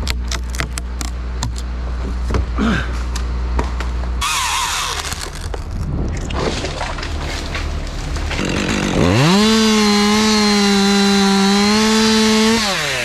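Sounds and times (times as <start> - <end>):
chainsaw revving: 4.2 - 5.6, 8.2 - 13.0.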